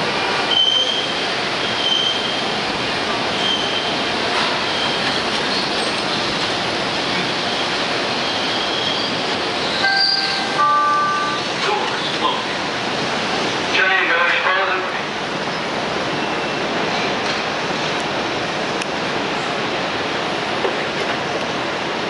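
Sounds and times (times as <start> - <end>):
train wheels rumbling on rail: 0.0 - 22.0
high wheel squeals: 3.4 - 3.9, 7.5 - 10.6
steady multi-pitch tone: 9.8 - 11.4.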